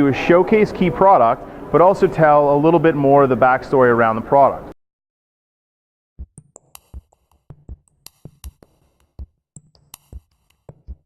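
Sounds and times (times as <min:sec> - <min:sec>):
drum machine hits: 0:06.2 - 0:11.0.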